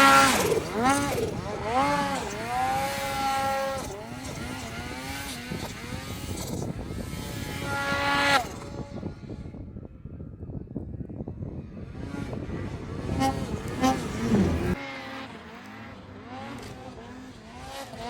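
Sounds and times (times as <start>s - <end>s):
snowmobile engine revving: 0.0s - 9.5s, 11.5s - 18.0s.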